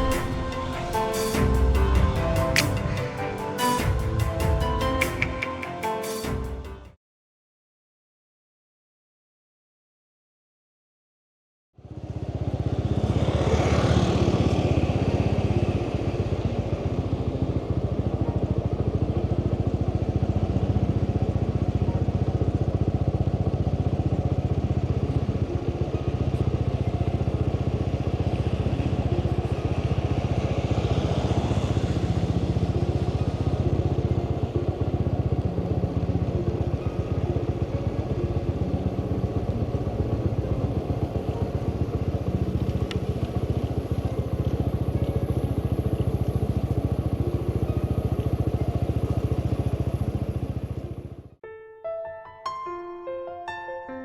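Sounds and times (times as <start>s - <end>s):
rushing hiss: 0.0s - 5.2s
road and wind noise: 11.8s - 51.3s
motorbike engine running: 11.8s - 51.4s.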